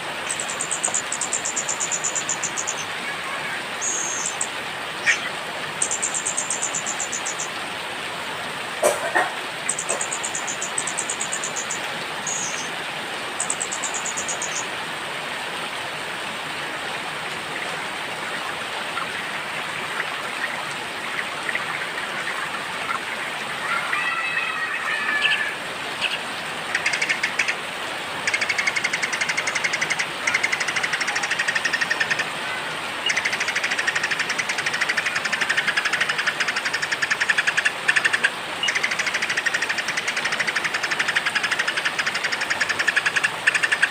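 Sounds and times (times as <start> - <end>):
songbirds trilling and chirping: 0.0 - 7.6, 8.8 - 12.8
rain hissing: 0.0 - 43.9.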